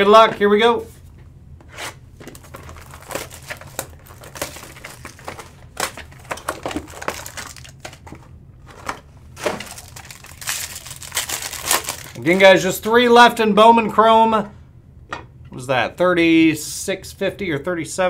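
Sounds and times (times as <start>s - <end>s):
foil wrapper crinkling: 2.2s - 12.2s.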